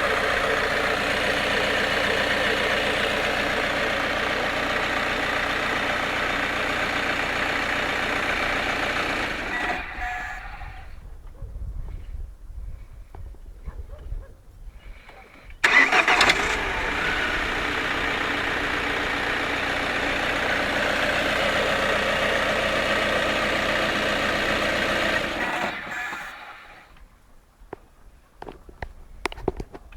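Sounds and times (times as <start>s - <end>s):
engine clatter: 0.0s - 10.9s, 15.6s - 27.0s
diesel engine cranking and idling: 0.0s - 11.0s, 15.5s - 27.0s.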